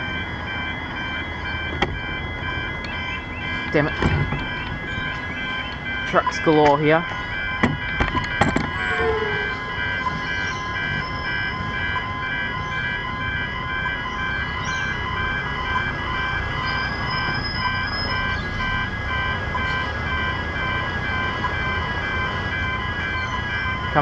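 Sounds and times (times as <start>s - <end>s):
rapid electronic alarm beeping: 0.0s - 24.0s
road traffic rumbling: 0.0s - 24.0s.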